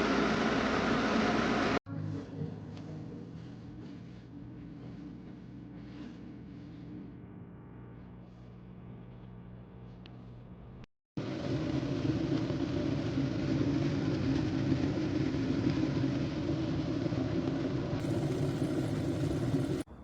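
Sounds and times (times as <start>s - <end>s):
electric kettle heating water: 0.0s - 1.8s, 11.2s - 19.9s.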